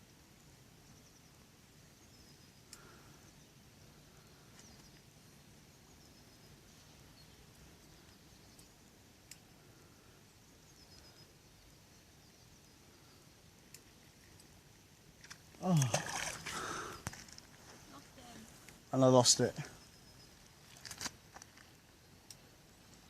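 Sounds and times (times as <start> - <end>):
faint bird chirps: 0.4 - 14.5, 15.6 - 20.8
faint clicks: 2.6 - 2.9, 7.5 - 9.5, 13.7 - 14.5, 20.7 - 22.5.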